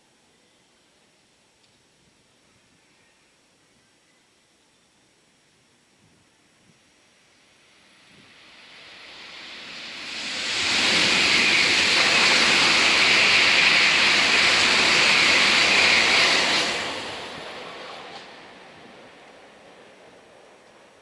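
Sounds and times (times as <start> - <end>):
high-speed train passing: 7.0 - 21.0.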